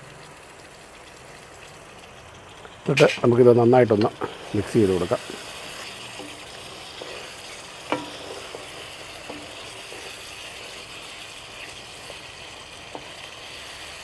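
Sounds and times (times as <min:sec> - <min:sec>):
curry sizzling in a pan: 0:00.0 - 0:14.0
spoon stirring: 0:02.9 - 0:14.0
spoon knocking against pan: 0:05.3 - 0:10.3, 0:12.9 - 0:13.2.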